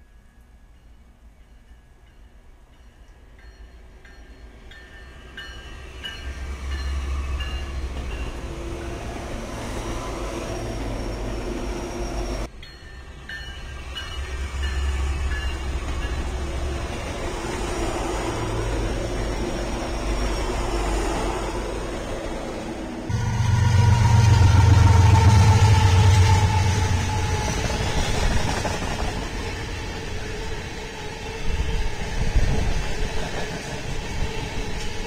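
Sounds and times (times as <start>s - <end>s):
train rumbling on rails: 1.2s - 35.0s.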